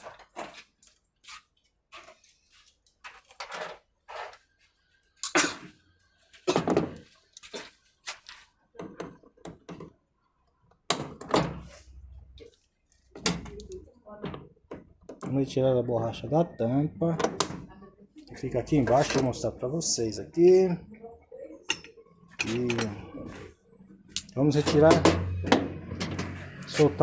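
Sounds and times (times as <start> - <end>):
tools clicking and clattering: 21.7 - 23.0, 24.1 - 26.8.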